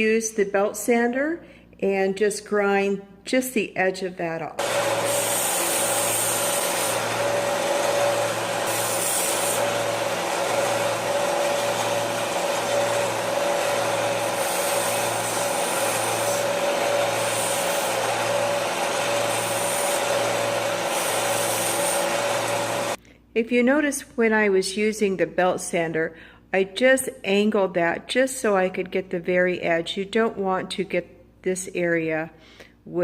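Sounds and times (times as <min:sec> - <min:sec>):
belt sander running: 0:04.6 - 0:23.0
metal edge grinding on belt: 0:04.6 - 0:23.0.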